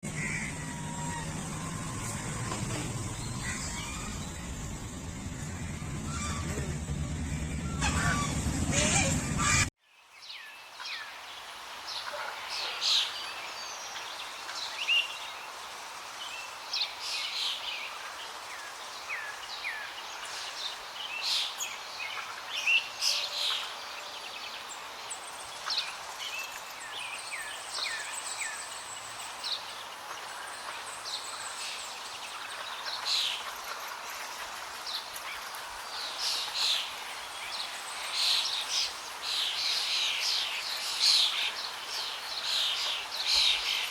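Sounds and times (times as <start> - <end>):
birds chirping and calling: 0.0 - 9.7
outdoor hiss: 12.8 - 43.9.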